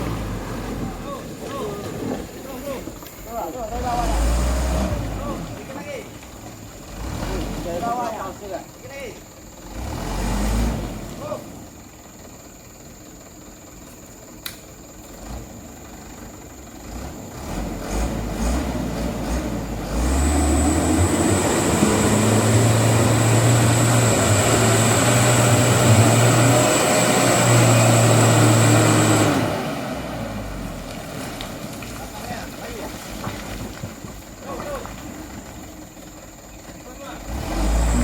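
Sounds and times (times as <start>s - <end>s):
diesel truck engine revving: 0.0s - 38.0s.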